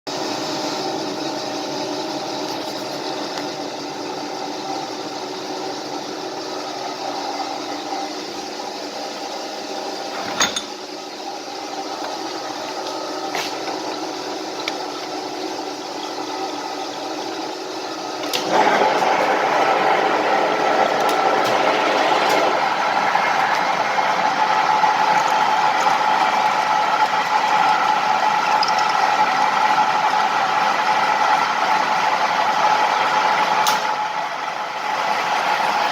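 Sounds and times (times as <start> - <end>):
metal lathe humming: 0.4 - 35.9
drill bit cutting metal: 24.9 - 30.2.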